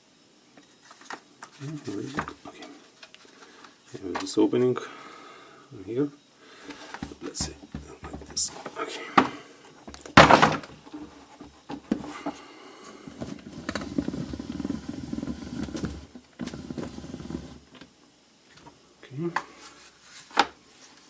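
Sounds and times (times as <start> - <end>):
plastic parts knocking: 6.9 - 8.5, 9.2 - 12.4
plastic scraping and rubbing: 13.1 - 17.9.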